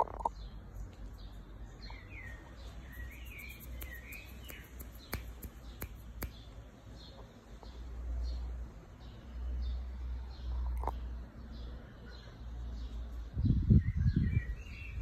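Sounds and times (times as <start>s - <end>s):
small birds chirping: 0.0s - 15.0s
sharp clicks: 3.4s - 6.4s.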